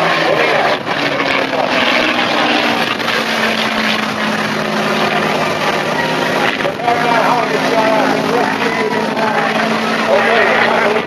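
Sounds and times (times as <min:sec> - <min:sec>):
aircraft engine droning overhead: 0:00.0 - 0:11.0.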